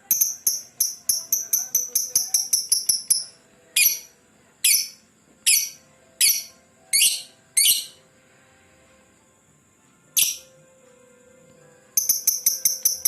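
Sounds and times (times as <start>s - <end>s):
lovebird shrill calls: 4.7s - 8.0s.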